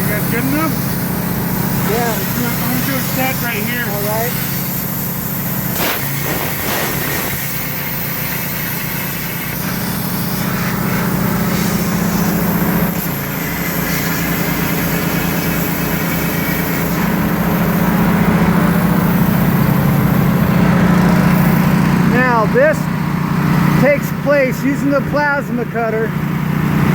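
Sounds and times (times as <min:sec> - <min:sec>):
plasma cutter cutting steel: 0:00.0 - 0:20.4
small engine running: 0:00.0 - 0:26.9.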